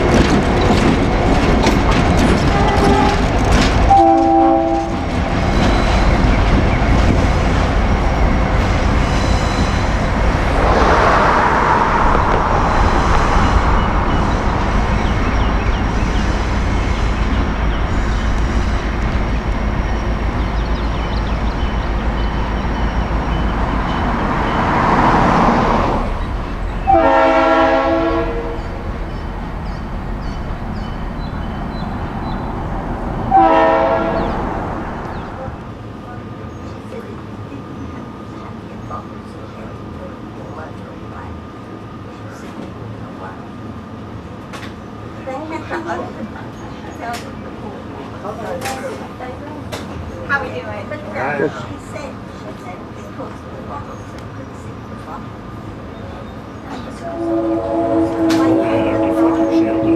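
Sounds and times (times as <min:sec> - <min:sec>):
diesel train rumbling: 0:00.0 - 0:59.9
train air horn blast: 0:03.9 - 0:05.0, 0:26.8 - 0:28.6, 0:33.3 - 0:34.5, 0:57.0 - 0:59.9.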